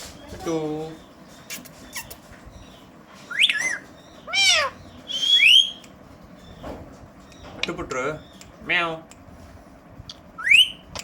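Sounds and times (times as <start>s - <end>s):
parrot whistling meow-like calls: 3.3s - 5.8s.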